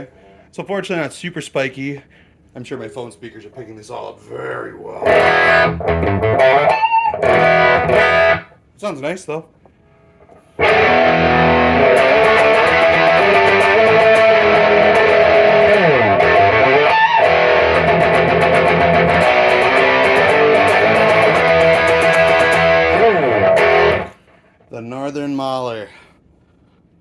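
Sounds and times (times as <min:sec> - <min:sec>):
distorted electric guitar riffing: 0:05.0 - 0:08.5, 0:10.6 - 0:24.2.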